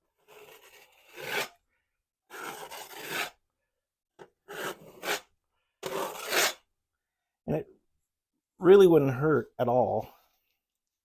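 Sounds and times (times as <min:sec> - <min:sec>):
trowel scraping wet plaster: 0:00.2 - 0:01.6, 0:02.3 - 0:03.4, 0:04.2 - 0:06.7.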